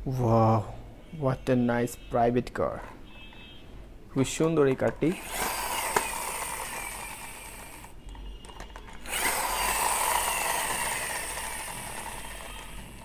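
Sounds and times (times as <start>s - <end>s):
toy car wheels whirring: 4.9s - 13.0s.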